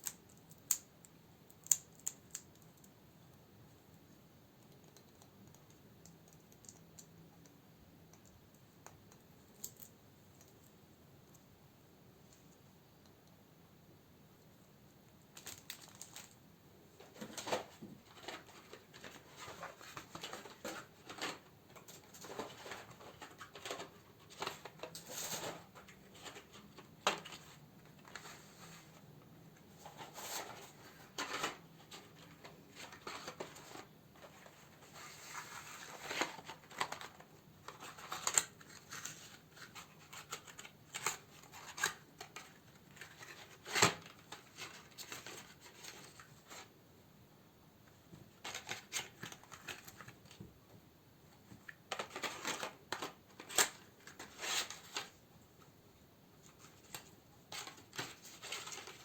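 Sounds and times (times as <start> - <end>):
packaging crinkling and rustling: 17.0 - 29.0, 29.8 - 46.7, 48.3 - 50.4, 51.5 - 55.2, 56.4 - 59.0.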